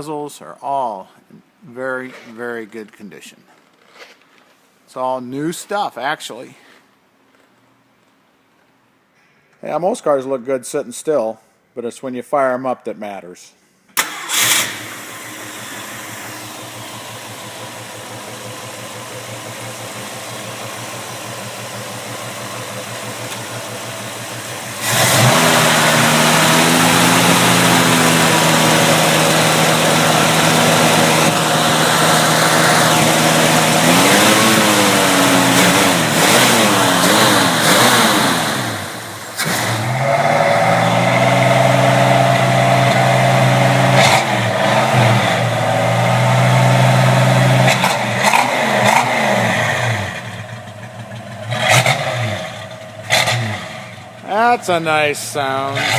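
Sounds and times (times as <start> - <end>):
car engine idling: 14.0 - 55.9
engine throttle blips: 14.0 - 55.9.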